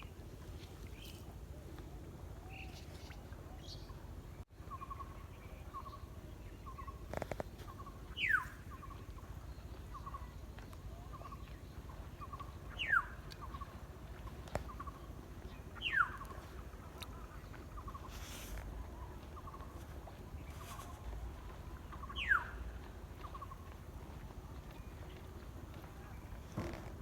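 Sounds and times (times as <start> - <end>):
bird chirping: 2.4 - 10.4, 11.0 - 13.8, 14.6 - 18.4, 21.9 - 23.8.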